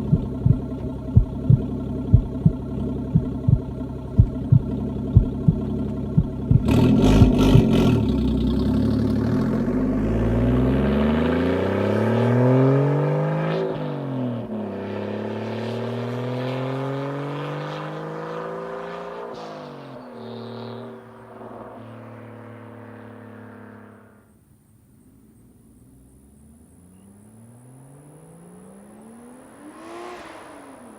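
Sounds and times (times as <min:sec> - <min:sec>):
sharp exhaust cracks: 0:00.0 - 0:08.2
car engine accelerating hard: 0:00.0 - 0:24.3, 0:25.1 - 0:30.9.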